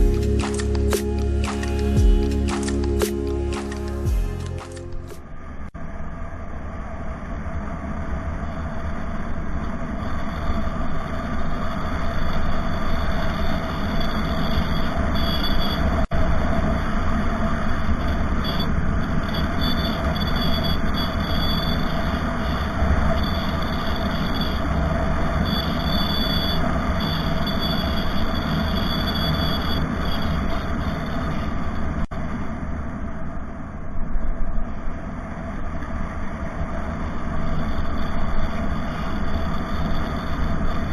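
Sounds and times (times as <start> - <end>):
thin high tones: 0.0 - 5.2
vehicle engine and road noise: 0.0 - 5.4.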